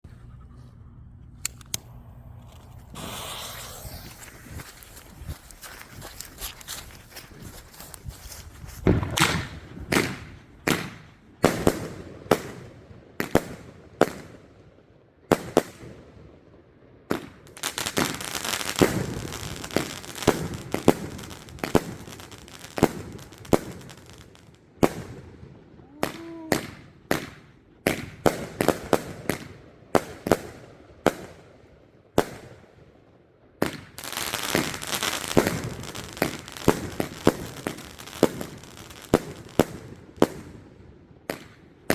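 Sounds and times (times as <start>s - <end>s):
firework crackling: 1.6s - 11.8s, 17.6s - 24.4s, 33.6s - 40.5s
firework bangs: 1.8s - 6.0s, 8.6s - 12.6s, 33.6s - 40.6s.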